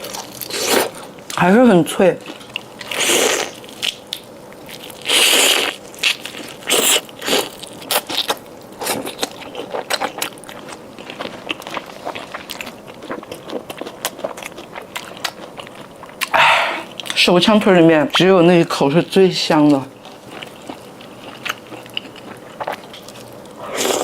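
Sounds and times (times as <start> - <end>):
crackly chewing: 2.2 - 17.3, 19.5 - 24.0.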